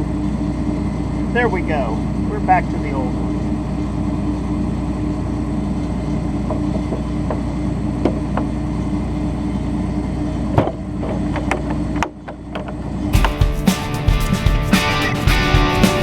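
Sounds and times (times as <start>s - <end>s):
sharp knock: 13.2s - 16.0s.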